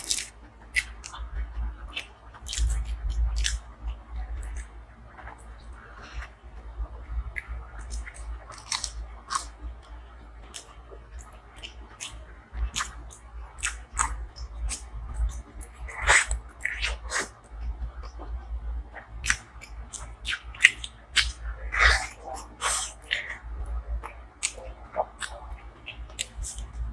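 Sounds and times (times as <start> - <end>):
crunchy bites: 0.0 - 1.2, 1.9 - 3.6, 7.4 - 9.5, 19.2 - 23.4
person chewing food: 0.0 - 6.4, 7.3 - 18.2, 19.0 - 26.9.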